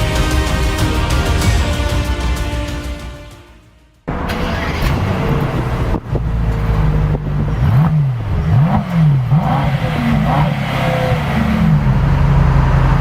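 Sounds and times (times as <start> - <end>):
car engine idling and revving: 4.1 - 13.0.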